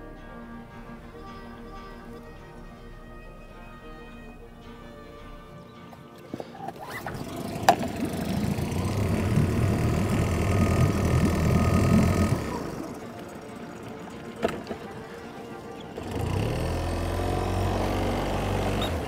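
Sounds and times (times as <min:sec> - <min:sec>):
motor vehicle engine running: 0:06.8 - 0:19.0.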